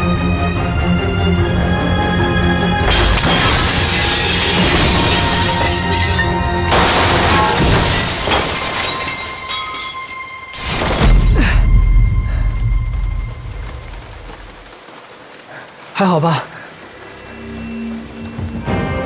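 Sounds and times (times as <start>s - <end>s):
dramatic film score: 0.0s - 19.0s
glass shattering: 2.8s - 11.6s.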